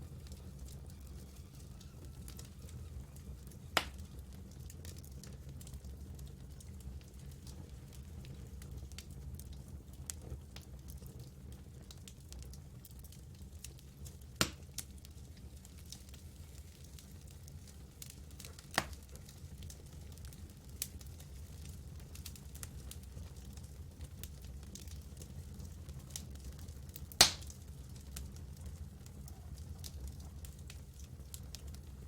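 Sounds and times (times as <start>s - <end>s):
campfire crackling: 0.0s - 32.0s
loud fire pops: 1.4s - 6.0s, 14.1s - 14.9s, 16.9s - 20.2s, 25.9s - 32.0s.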